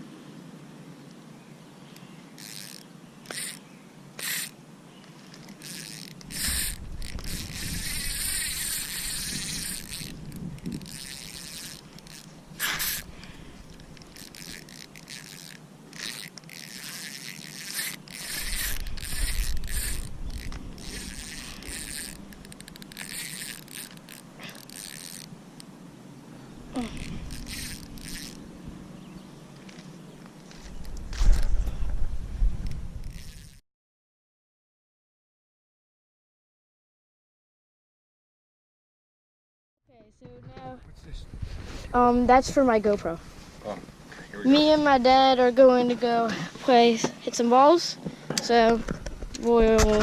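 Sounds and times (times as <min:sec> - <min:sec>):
fishing reel clicking: 0:02.4 - 0:03.6, 0:04.2 - 0:04.6, 0:05.2 - 0:13.1, 0:13.7 - 0:25.7, 0:26.8 - 0:28.4, 0:32.6 - 0:33.6.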